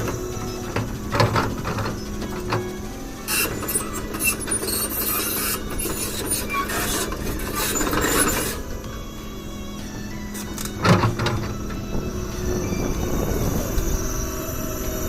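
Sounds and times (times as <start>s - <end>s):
metal scraping and clanking: 0.0s - 14.3s
excavator engine hum: 0.0s - 15.0s.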